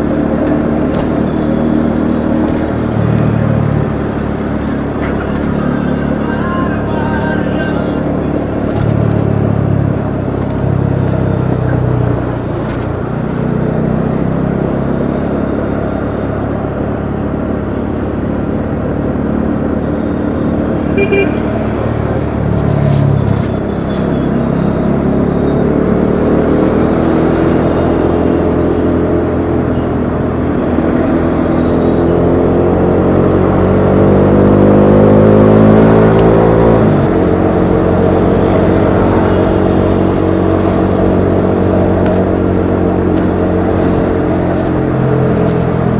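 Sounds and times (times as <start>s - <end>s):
motorcycle engine revving: 0.0s - 16.8s, 20.6s - 29.7s, 30.3s - 45.9s
road noise: 0.0s - 45.9s
wind: 0.0s - 45.9s.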